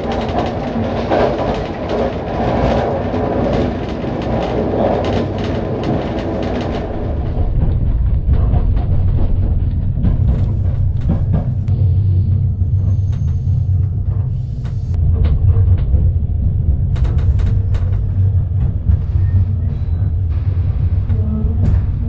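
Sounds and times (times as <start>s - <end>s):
clicks and rattles: 0.0s - 11.7s
train carriage rumbling: 0.0s - 22.0s.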